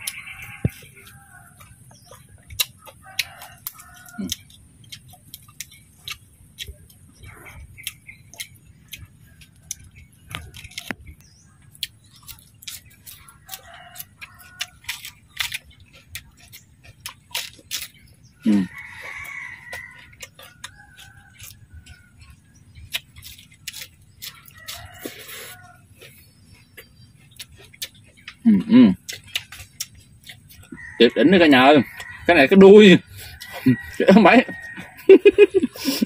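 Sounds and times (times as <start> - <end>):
crunching crispy food: 0.0 - 31.0.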